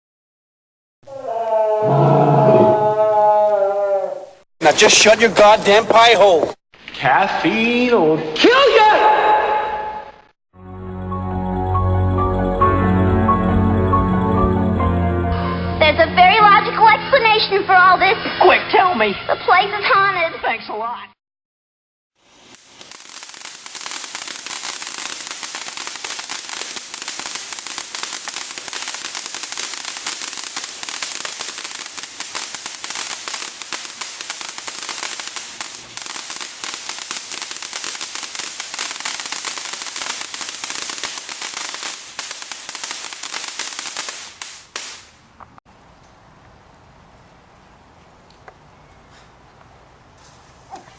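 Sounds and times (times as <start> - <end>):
firework sparks crackling hiss: 4.6 - 6.6, 22.2 - 45.3.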